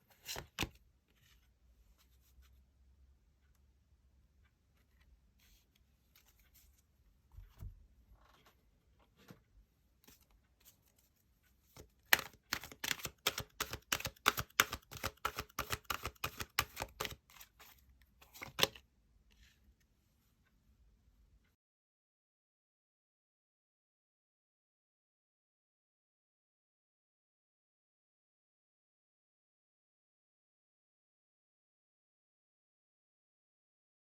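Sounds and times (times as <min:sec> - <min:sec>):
cards being shuffled: 0:00.1 - 0:01.4, 0:11.8 - 0:18.8.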